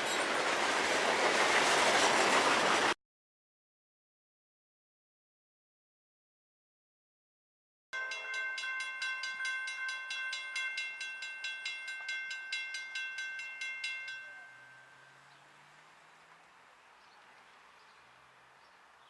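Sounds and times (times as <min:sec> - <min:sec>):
crossing warning bell ringing: 0:08.0 - 0:15.6.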